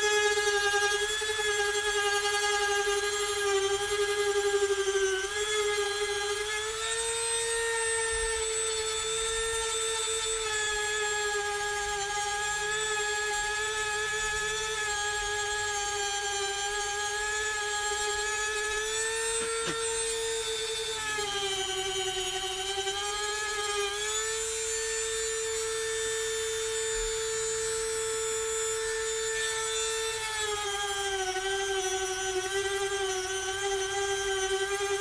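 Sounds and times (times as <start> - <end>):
rotary tool grinding silicone: 0.0 - 35.0.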